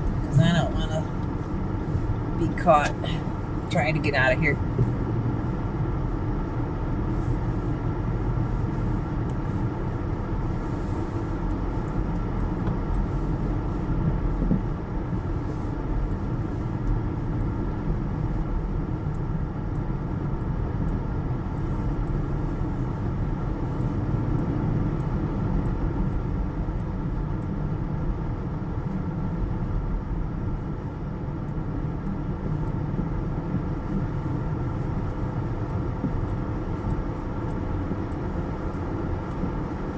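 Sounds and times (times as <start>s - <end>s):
car engine rumble: 0.0s - 39.9s
constant hum: 0.0s - 39.9s.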